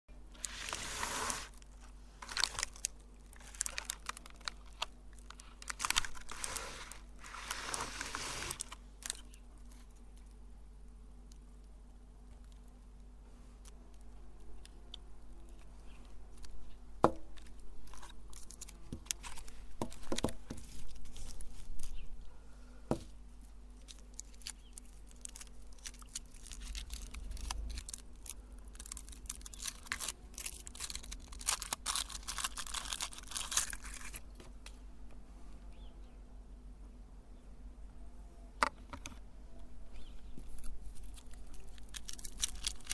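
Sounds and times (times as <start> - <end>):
meat grinder crushing paper: 2.2 - 9.3, 24.0 - 34.3, 41.0 - 42.9.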